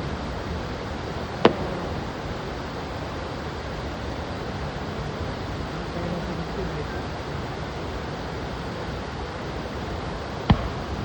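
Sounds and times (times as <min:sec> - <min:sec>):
steady rushing noise: 0:00.0 - 0:11.0
firework bang: 0:01.4 - 0:02.4, 0:10.4 - 0:11.0.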